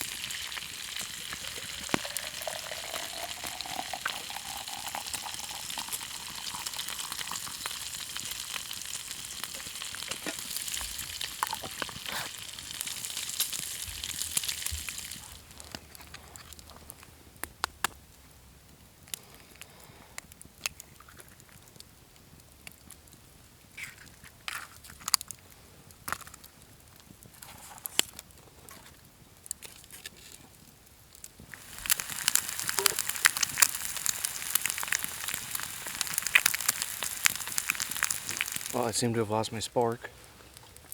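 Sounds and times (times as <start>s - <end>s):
food sizzling in a frying pan: 0.0s - 15.5s, 31.4s - 39.4s
pops and crackles: 0.0s - 18.3s, 19.0s - 39.6s, 40.4s - 40.9s.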